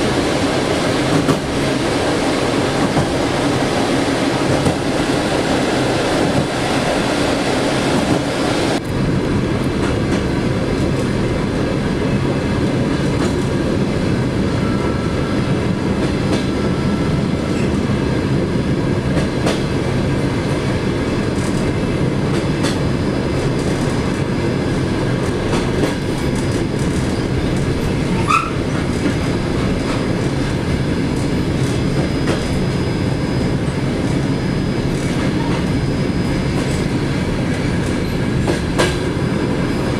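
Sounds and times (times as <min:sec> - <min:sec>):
train wheels rumbling on rails: 0:00.0 - 0:39.9
clacks over rail joints: 0:01.1 - 0:01.5, 0:16.0 - 0:16.5, 0:19.1 - 0:19.7, 0:21.3 - 0:22.8, 0:25.2 - 0:30.5, 0:37.6 - 0:39.1.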